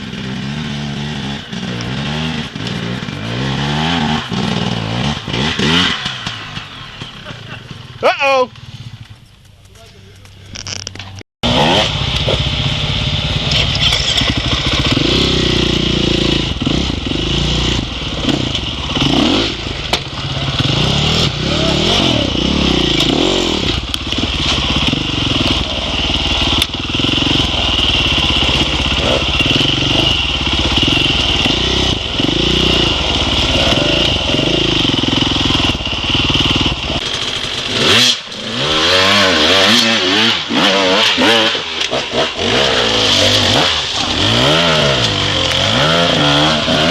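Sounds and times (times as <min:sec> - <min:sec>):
dirt bike engine revving: 0:00.0 - 0:09.2, 0:11.4 - 0:46.9.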